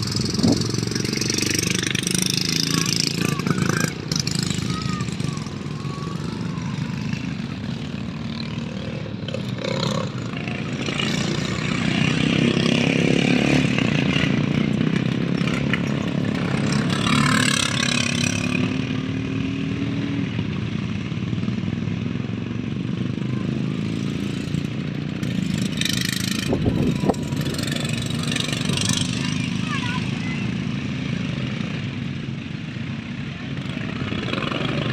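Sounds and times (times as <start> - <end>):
lawnmower engines running: 0.0 - 34.9.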